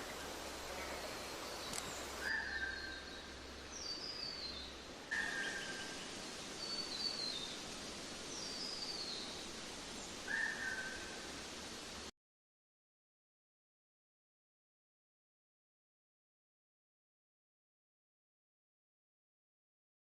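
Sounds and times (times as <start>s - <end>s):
songbirds calling: 0.0s - 11.5s
steady outdoor hiss: 0.0s - 12.1s.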